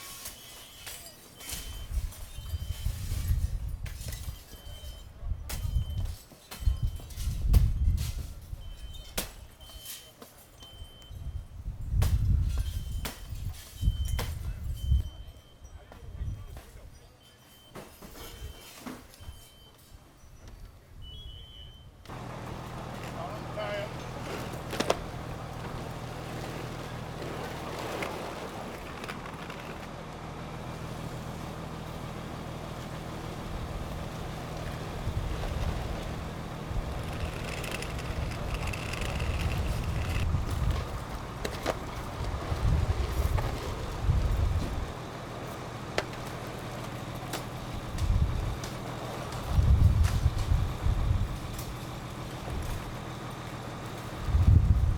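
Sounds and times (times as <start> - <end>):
fire truck engine drone: 22.1 - 54.9
wind buffeting microphone: 33.4 - 45.0, 47.6 - 48.6, 49.4 - 53.0, 54.1 - 54.9.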